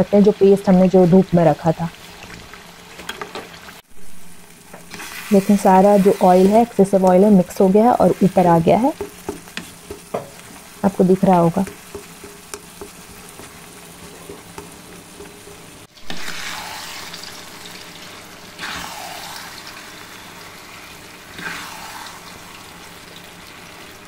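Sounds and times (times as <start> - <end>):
paste sizzling in oil: 1.9 - 24.0
metal spatula stirring: 11.2 - 16.5.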